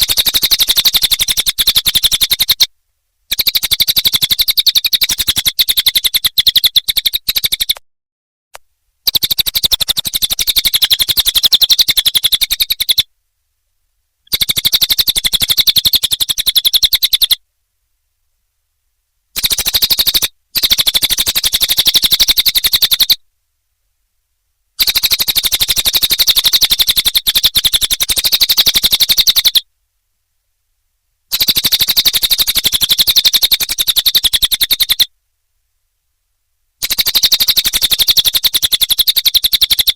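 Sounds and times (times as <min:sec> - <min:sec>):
bird rattling trill: 0:00.0 - 0:02.7, 0:03.3 - 0:07.8, 0:09.0 - 0:13.0, 0:14.2 - 0:17.4, 0:19.4 - 0:23.2, 0:24.8 - 0:29.6, 0:31.3 - 0:35.1, 0:36.8 - 0:39.9.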